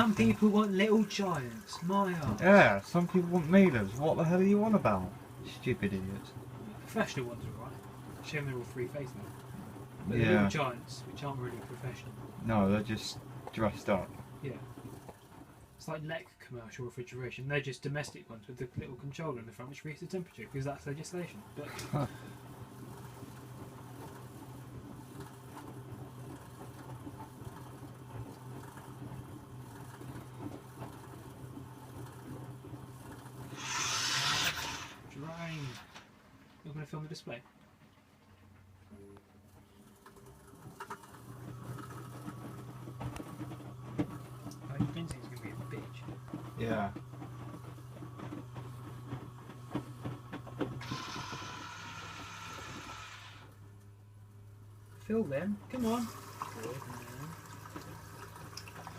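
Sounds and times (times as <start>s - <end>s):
rush of water filling: 0.0s - 9.4s, 33.5s - 35.9s, 50.8s - 53.6s, 55.7s - 58.9s
washing machine humming: 0.0s - 58.9s.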